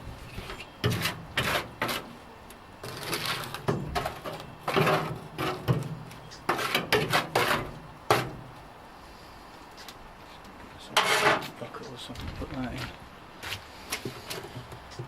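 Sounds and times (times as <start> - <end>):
scraping rubbing and knocking: 0.0 - 2.2, 2.8 - 8.6, 10.9 - 11.6.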